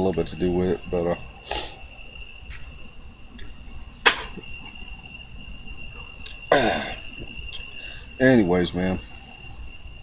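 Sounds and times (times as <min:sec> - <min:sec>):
crickets chirping: 0:00.0 - 0:10.0
sharp click: 0:04.0 - 0:04.4.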